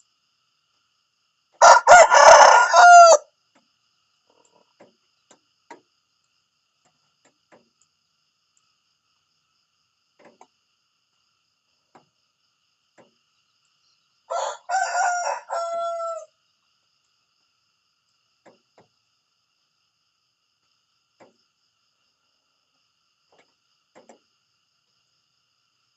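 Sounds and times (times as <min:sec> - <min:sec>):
rooster crowing: 0:01.6 - 0:03.3, 0:14.3 - 0:16.4.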